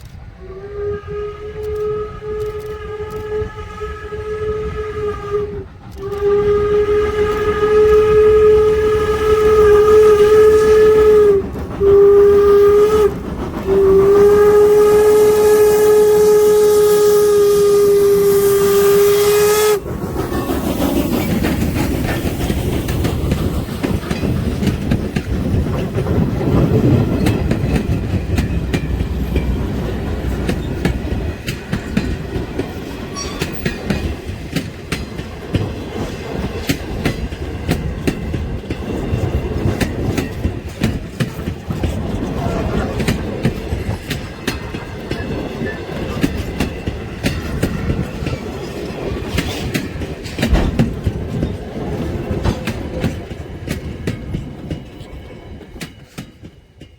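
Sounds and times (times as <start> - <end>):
steam whistle blasts: 0.4 - 19.8
train wheels clicking over rail joints: 1.1 - 56.9.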